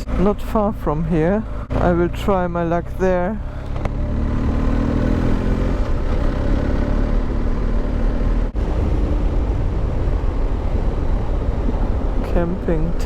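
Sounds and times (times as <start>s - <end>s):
motorcycle engine running: 0.0s - 8.5s
wind rush on microphone: 4.2s - 13.0s.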